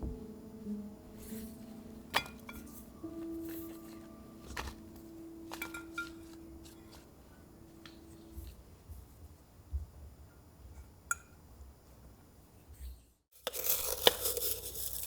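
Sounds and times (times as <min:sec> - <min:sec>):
glass jars clinking: 0:02.1 - 0:07.0.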